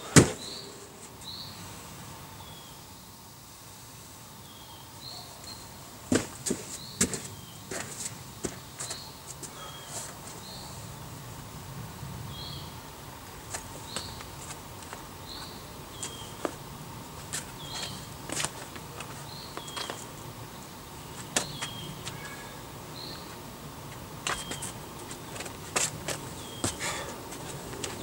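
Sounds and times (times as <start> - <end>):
bird chirping: 0.4 - 1.6, 15.2 - 16.4, 17.6 - 18.1, 19.2 - 23.4, 26.3 - 27.1
hands and shoes tapping on rock: 6.1 - 9.6, 13.5 - 16.6, 17.2 - 20.2, 21.2 - 22.3, 23.9 - 28.0.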